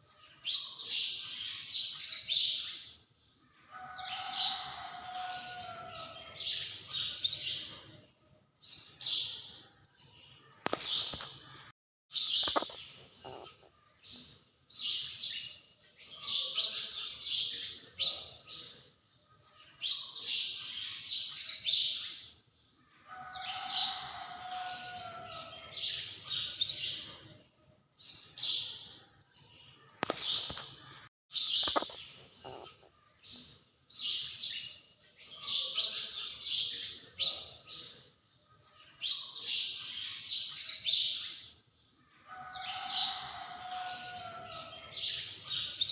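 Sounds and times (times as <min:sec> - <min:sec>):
high-pitched chirping calls: 0:12.2 - 0:13.8, 0:31.4 - 0:32.9.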